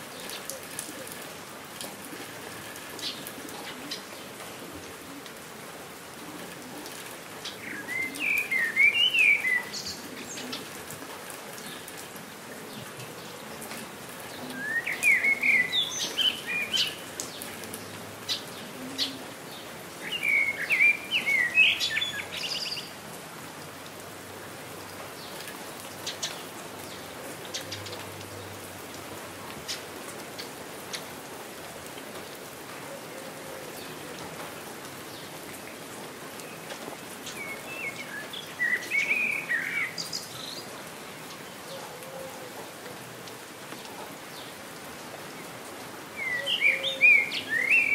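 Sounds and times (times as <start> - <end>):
steady rain falling: 0.0 - 47.9
songbird chirping: 7.4 - 10.7, 14.4 - 23.0, 36.4 - 41.9, 46.2 - 47.9.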